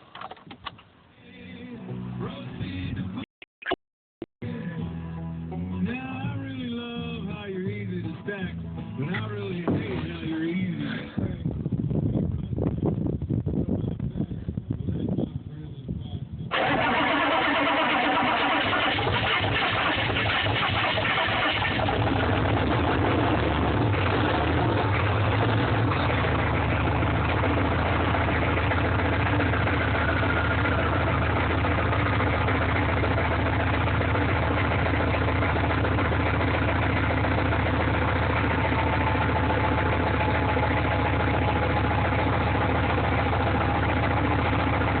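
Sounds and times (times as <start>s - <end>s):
diesel engine idling: 16.5s - 45.0s.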